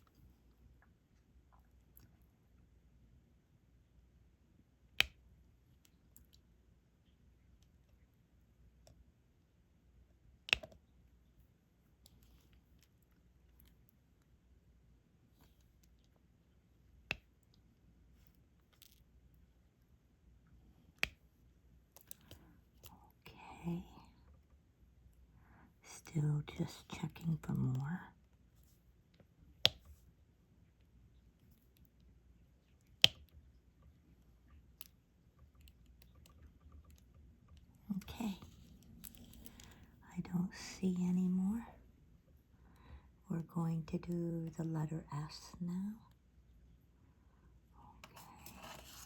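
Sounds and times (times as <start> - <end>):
small ticks of applicator pen: 10.4 - 10.8.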